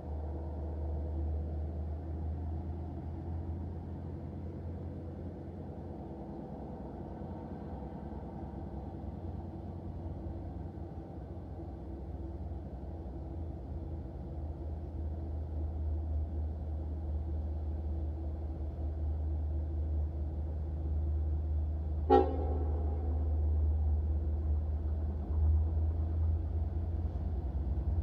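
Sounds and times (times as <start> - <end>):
train rumbling: 0.0 - 28.0
train horn toot: 22.1 - 23.4.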